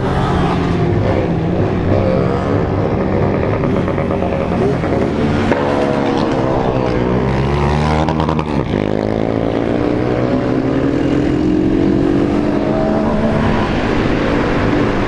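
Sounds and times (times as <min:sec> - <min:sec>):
motorcycle engine accelerating: 0:00.0 - 0:15.0
motorcycle engines running: 0:00.0 - 0:15.0.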